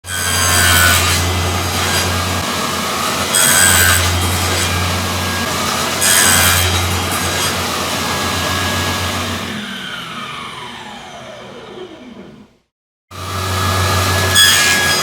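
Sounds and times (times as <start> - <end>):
power saw cutting plywood: 0.0 - 12.5, 13.1 - 15.0
saw motor winding down whine: 7.7 - 15.0.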